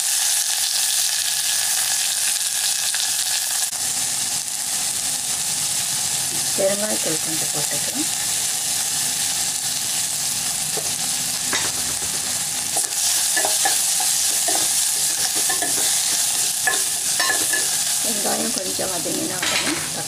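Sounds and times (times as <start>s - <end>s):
vegetables sizzling in hot oil: 0.0s - 20.0s
utensil scraping against pan: 10.8s - 18.1s.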